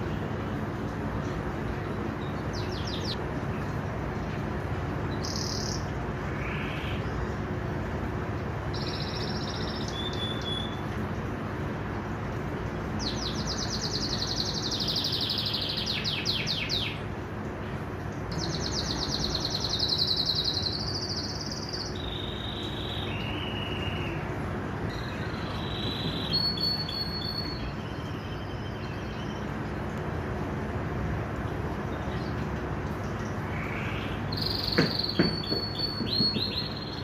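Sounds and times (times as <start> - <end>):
canary singing trills: 2.1 - 3.2, 5.1 - 7.2, 8.7 - 10.9, 13.0 - 17.1, 18.3 - 29.8, 33.4 - 37.0.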